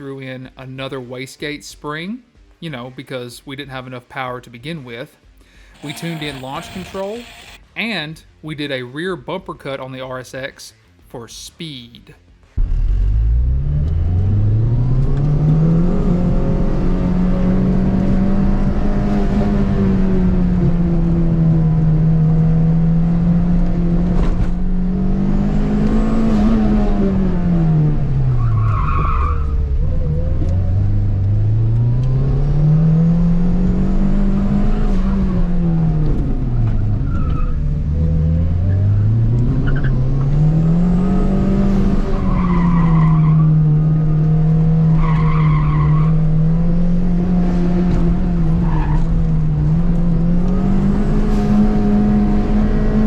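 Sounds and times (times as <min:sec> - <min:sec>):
car engine accelerating: 0:12.6 - 0:53.0
tires squealing: 0:28.2 - 0:30.7, 0:36.6 - 0:38.0, 0:41.4 - 0:46.4, 0:48.1 - 0:49.8.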